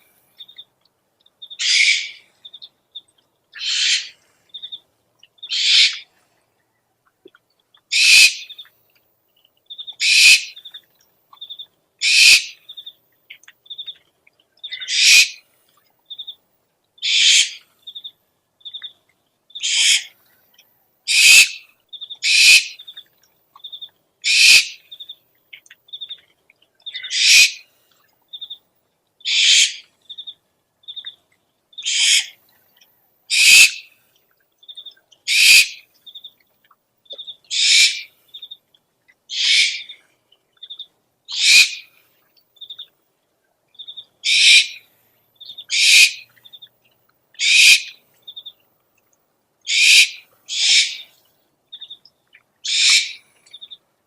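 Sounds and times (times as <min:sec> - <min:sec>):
owl hissing screech: 0:01.6 - 0:02.2, 0:03.6 - 0:04.2, 0:05.5 - 0:06.0, 0:07.9 - 0:08.4, 0:10.0 - 0:10.5, 0:12.0 - 0:12.5, 0:14.9 - 0:15.4, 0:17.0 - 0:17.6, 0:19.6 - 0:20.1, 0:21.1 - 0:21.6, 0:22.2 - 0:22.8, 0:24.3 - 0:24.8, 0:27.1 - 0:27.6, 0:29.3 - 0:29.8, 0:31.8 - 0:32.3, 0:33.3 - 0:33.8, 0:35.3 - 0:35.8, 0:37.5 - 0:38.1, 0:39.3 - 0:39.9, 0:41.4 - 0:41.8, 0:44.2 - 0:44.8, 0:45.7 - 0:46.2, 0:47.4 - 0:47.9, 0:49.7 - 0:51.1, 0:52.7 - 0:53.2.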